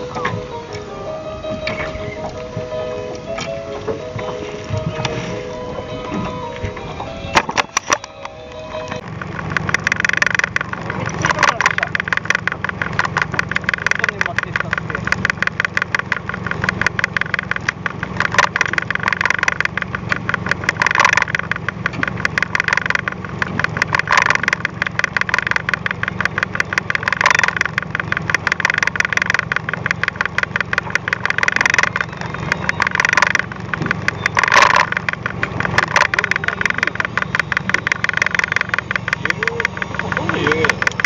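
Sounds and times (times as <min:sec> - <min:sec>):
boat engine idling with ticking: 0:00.0 - 0:41.0.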